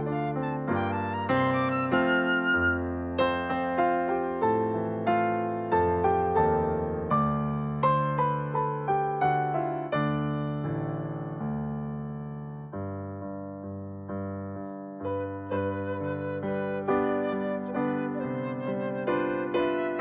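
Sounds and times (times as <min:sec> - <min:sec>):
slow gentle piano: 0:00.0 - 0:20.0.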